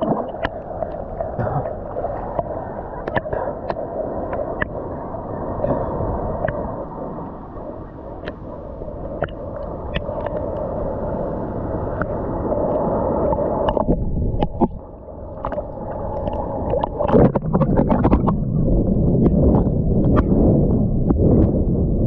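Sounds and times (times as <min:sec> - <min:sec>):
water sloshing and gurgling: 0:00.0 - 0:22.0
small splashes and clicks: 0:02.3 - 0:04.8.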